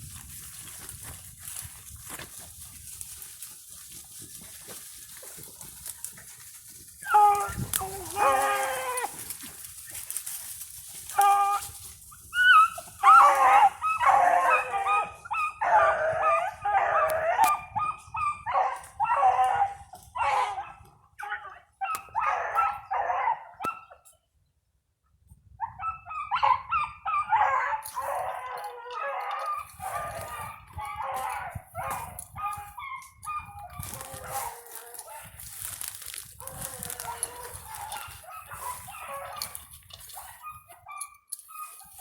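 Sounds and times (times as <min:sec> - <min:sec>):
dog barking and yelping: 0:07.0 - 0:09.2, 0:12.3 - 0:24.0, 0:25.6 - 0:42.0.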